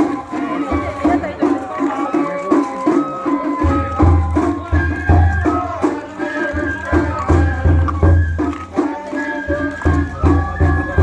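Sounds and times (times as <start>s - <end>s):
drums beating: 0.0s - 11.0s.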